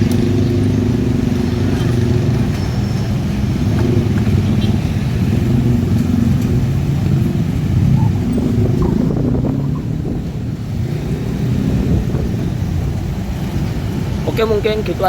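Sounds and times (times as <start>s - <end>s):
motor vehicle engines running: 0.0s - 15.0s.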